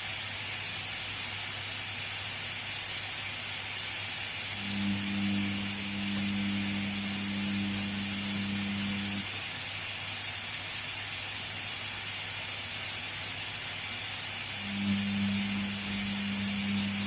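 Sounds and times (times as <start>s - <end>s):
washing machine watery hiss: 0.0s - 17.0s
drum motor hum: 4.5s - 9.4s, 14.5s - 17.0s.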